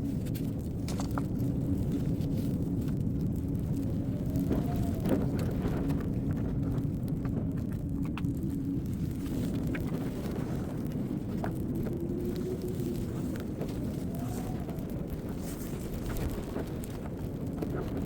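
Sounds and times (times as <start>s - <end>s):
blizzard wind rumbling: 0.0s - 18.0s
faint low howl: 0.0s - 18.0s.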